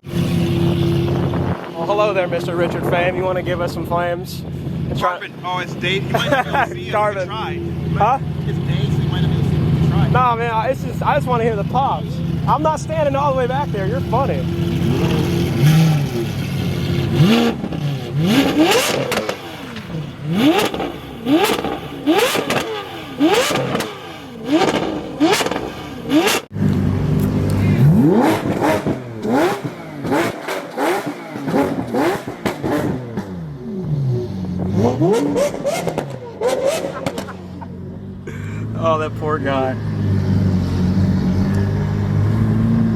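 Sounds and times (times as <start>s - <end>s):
sports car engine revving: 0.0s - 42.9s
exhaust pops and cracks: 36.8s - 37.4s.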